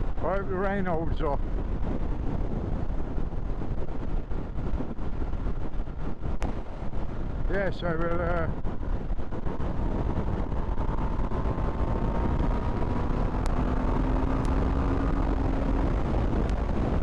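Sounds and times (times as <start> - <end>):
wind rush on microphone: 0.0 - 17.0
motorcycle engine accelerating: 9.2 - 17.0.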